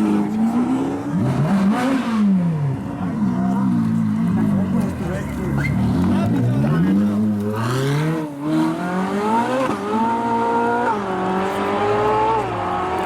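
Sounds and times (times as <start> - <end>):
car engine accelerating hard: 0.0 - 13.0.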